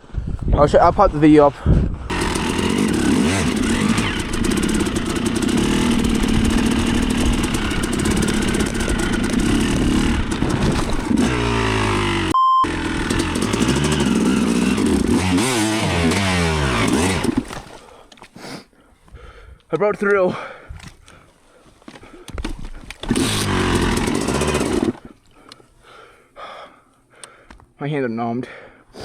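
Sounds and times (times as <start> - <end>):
dirt bike engine revving: 2.1 - 17.6, 23.0 - 25.0
censor beep: 12.3 - 12.7.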